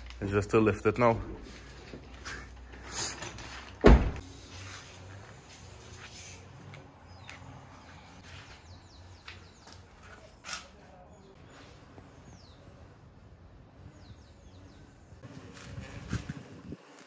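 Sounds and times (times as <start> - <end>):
birds chirping: 5.7 - 16.4.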